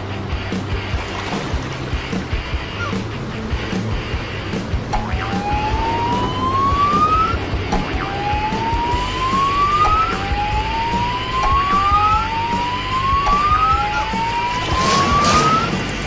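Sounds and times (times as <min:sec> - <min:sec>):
siren whooping: 0:05.0 - 0:16.0.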